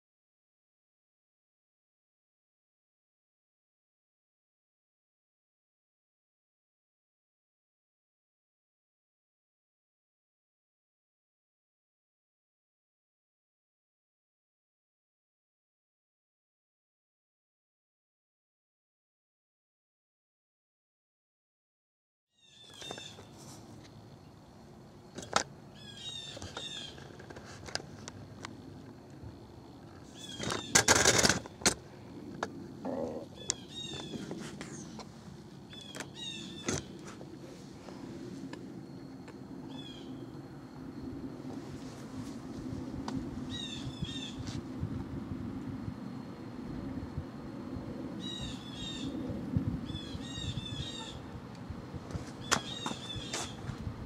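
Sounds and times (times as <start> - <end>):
faint steady hum: 22.4 - 54.0
steady low rumble: 31.4 - 54.0
birds chirping descending calls: 32.9 - 35.0, 35.7 - 37.0, 43.5 - 44.4, 48.2 - 49.2, 49.9 - 51.4, 52.4 - 53.6.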